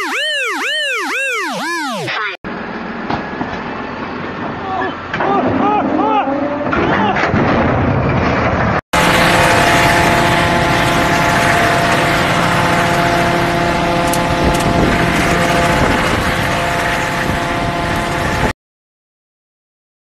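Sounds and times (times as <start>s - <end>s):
loud vehicle engine running: 9.0s - 18.5s
rushing noise: 9.0s - 18.5s.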